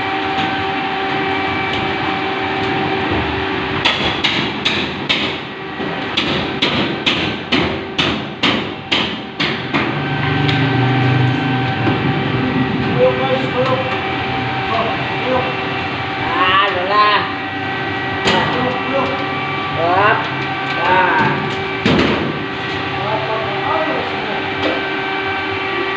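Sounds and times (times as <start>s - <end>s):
steady background hum: 0.0s - 25.9s
hammer striking sheet metal: 3.8s - 10.7s, 21.2s - 22.7s.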